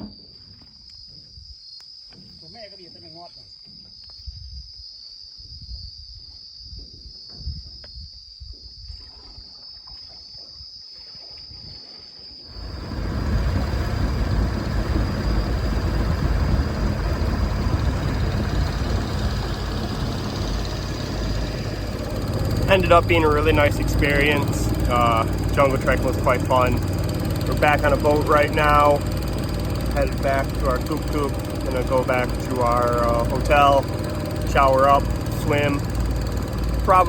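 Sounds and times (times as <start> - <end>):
insects buzzing: 9.5 - 37.0
boat engine running loudly: 12.5 - 37.0.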